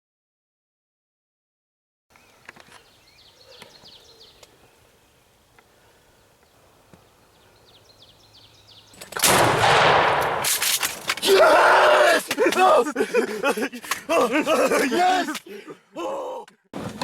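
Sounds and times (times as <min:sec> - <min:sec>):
songbirds chirping faintly: 0:02.1 - 0:09.5
loud shotgun shot: 0:09.2 - 0:11.2.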